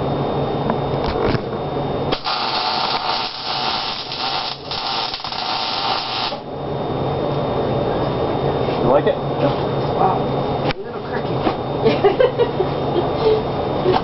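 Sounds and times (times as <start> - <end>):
low hum: 0.0 - 12.0
arc welder hissing: 2.1 - 6.5.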